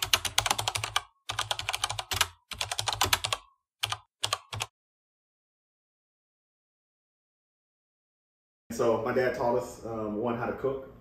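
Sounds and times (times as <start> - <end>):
computer keyboard typing: 0.0 - 4.7.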